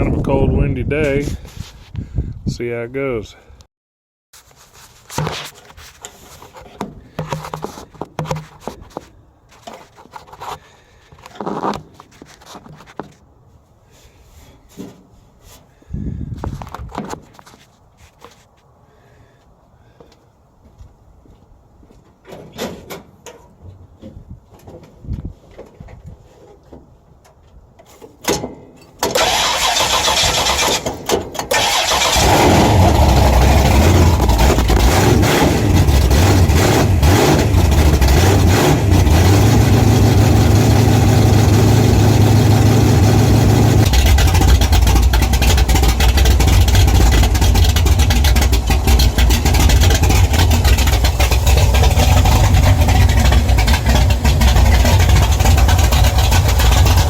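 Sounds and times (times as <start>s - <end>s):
starter motor cranking: 29.1s - 57.0s
car engine idling: 31.5s - 57.0s.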